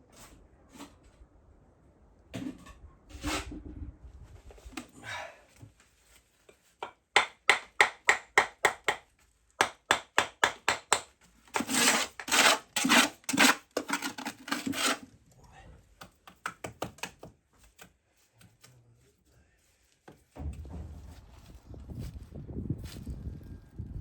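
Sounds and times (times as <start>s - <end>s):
scraping strokes against wood: 11.5s - 15.0s.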